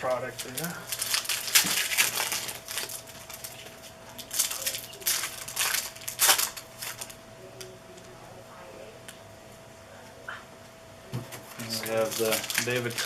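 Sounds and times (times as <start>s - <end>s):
wrappers crinkling and rustling: 0.0s - 7.2s, 11.5s - 13.0s
faint steady hum: 0.0s - 13.0s.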